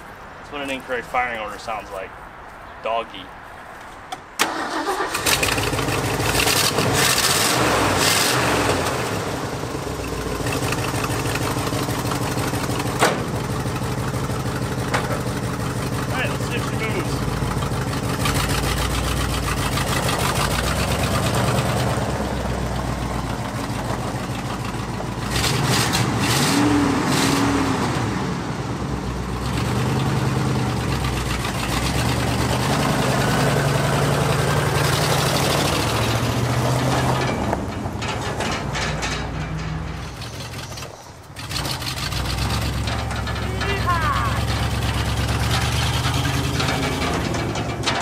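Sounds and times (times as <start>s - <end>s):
truck engine revving: 4.4s - 48.0s.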